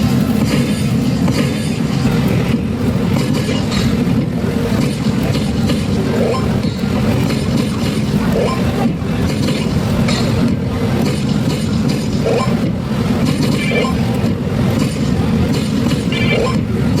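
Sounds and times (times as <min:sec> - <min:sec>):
slot machines running: 0:01.8 - 0:17.0.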